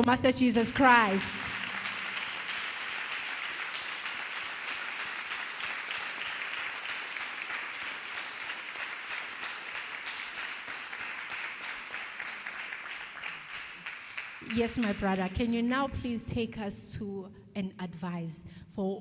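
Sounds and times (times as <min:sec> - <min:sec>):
crowd clapping: 0:00.7 - 0:15.9.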